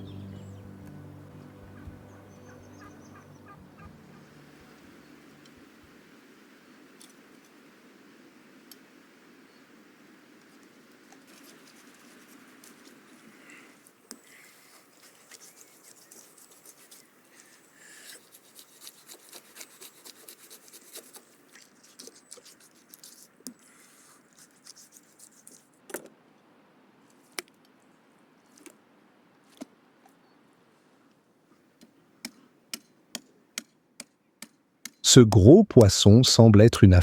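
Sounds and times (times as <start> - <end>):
knife crackling on fish: 14.2 - 25.8.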